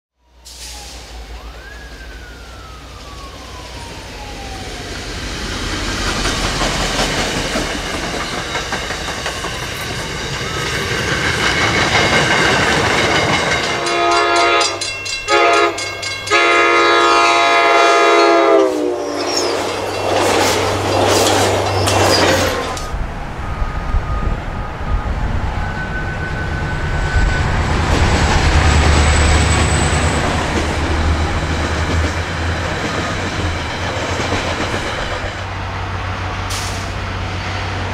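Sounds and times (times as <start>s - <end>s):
diesel locomotive rumble: 0.4s - 37.9s
train wheels on rails: 0.4s - 37.9s
train horn blasts: 13.6s - 19.6s.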